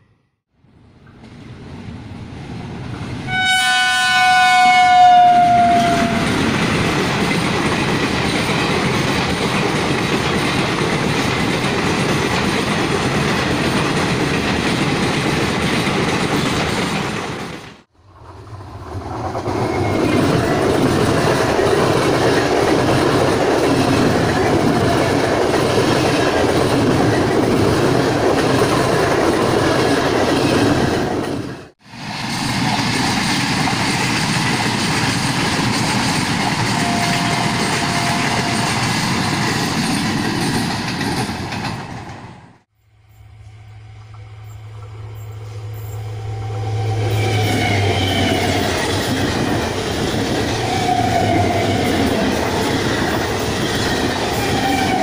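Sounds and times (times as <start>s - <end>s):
local train running past: 0.0s - 55.0s
train horn: 3.3s - 6.4s, 36.7s - 38.8s, 43.2s - 48.8s
wheels clacking on rail joints: 32.2s - 42.3s.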